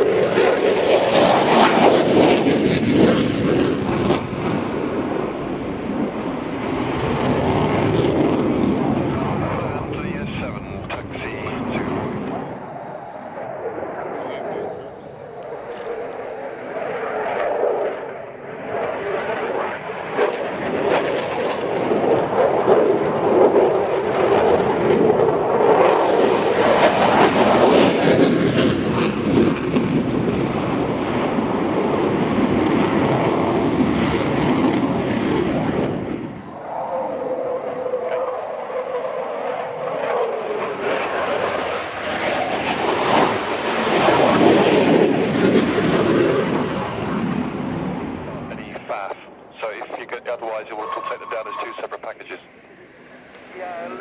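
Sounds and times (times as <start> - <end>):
aircraft engine noise: 0.0 - 54.0.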